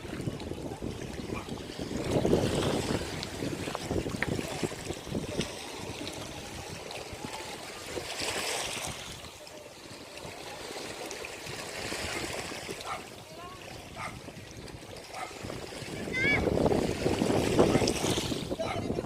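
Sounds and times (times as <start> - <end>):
ocean surf washing onto beach: 0.0 - 19.0.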